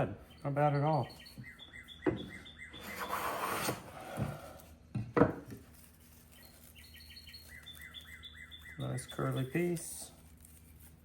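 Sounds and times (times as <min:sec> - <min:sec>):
small bird chirping: 0:00.0 - 0:03.1, 0:06.1 - 0:09.8
hand plane rasping on wood: 0:02.8 - 0:04.6
wooden knock: 0:04.9 - 0:05.6.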